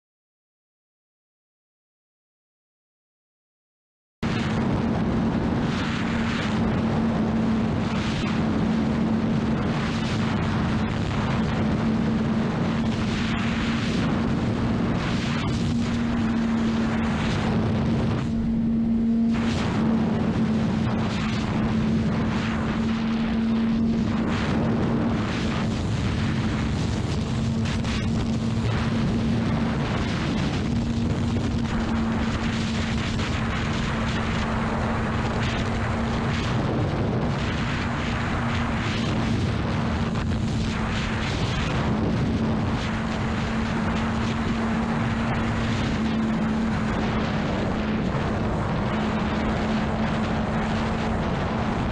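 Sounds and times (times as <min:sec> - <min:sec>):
wind rush on microphone: 0:04.2 - 0:51.9.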